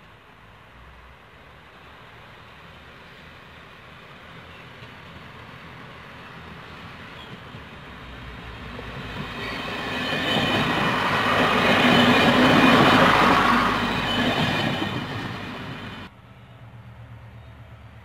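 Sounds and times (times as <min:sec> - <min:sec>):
diesel train passing: 0:00.0 - 0:18.0.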